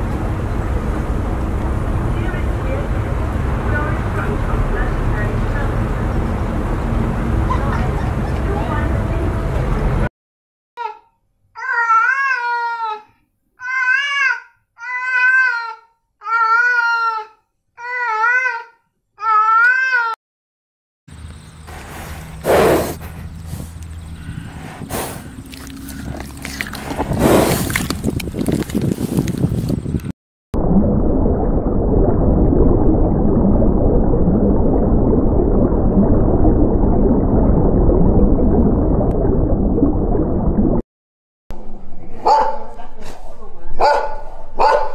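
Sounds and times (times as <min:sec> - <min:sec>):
underwater rush and gurgle: 0:30.6 - 0:40.8.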